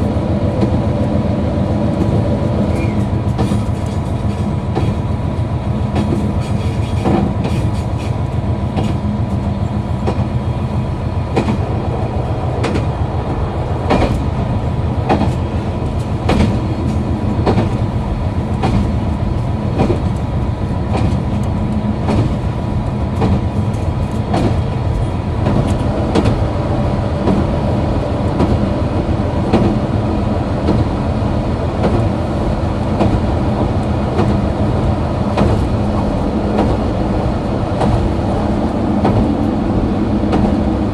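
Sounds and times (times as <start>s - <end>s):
diesel railcar engine running: 0.0s - 40.9s
wheels clicking over rail joints: 5.8s - 10.6s, 13.8s - 26.5s.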